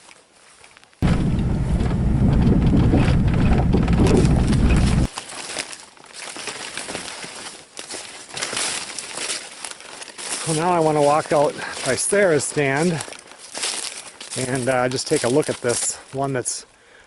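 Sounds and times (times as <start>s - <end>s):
wind buffeting microphone: 1.0s - 5.1s.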